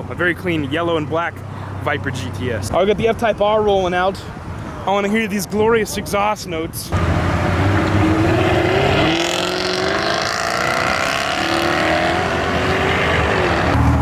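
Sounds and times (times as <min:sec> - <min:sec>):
car exhaust revving: 0:06.9 - 0:14.0.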